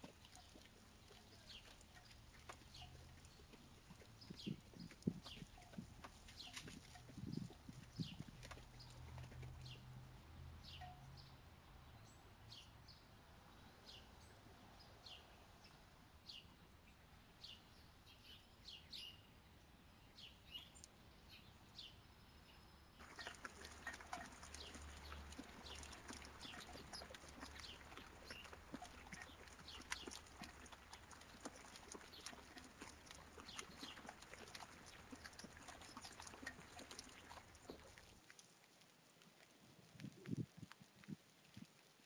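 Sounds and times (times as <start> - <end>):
small birds chirping: 0.0 - 9.9, 20.1 - 38.4.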